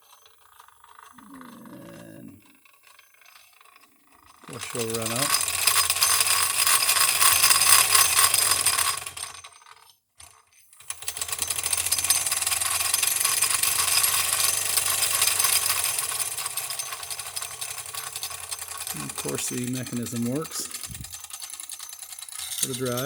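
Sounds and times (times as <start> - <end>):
model steam engine running fast: 3.6 - 9.6, 10.8 - 23.0.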